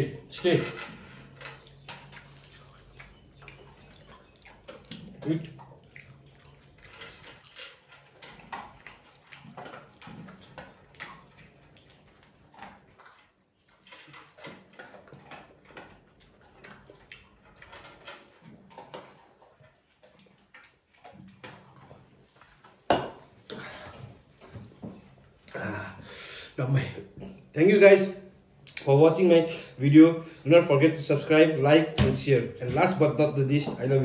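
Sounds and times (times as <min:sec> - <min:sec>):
gulping from a can: 0:00.3 - 0:13.4
wet chewing clicks: 0:00.8 - 0:26.2, 0:28.4 - 0:32.0.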